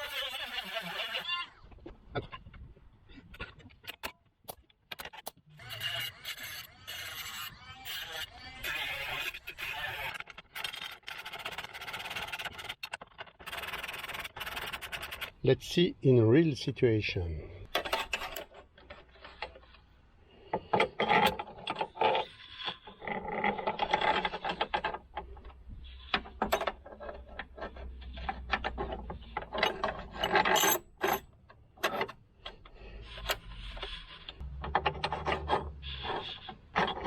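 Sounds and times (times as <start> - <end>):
metal scraping on metal: 5.5 - 15.4, 17.7 - 37.0
sharp metal clicks and knocks: 23.7 - 35.8.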